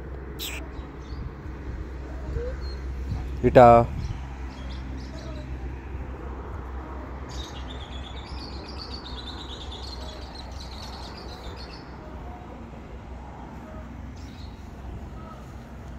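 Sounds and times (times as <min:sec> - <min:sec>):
small birds twittering: 0:00.4 - 0:05.7, 0:07.3 - 0:12.5.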